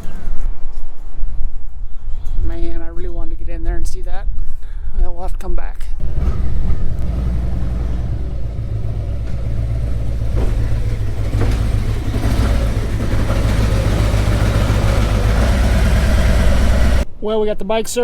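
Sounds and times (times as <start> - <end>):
truck engine rumble: 6.0 - 17.1
road noise: 6.0 - 17.2.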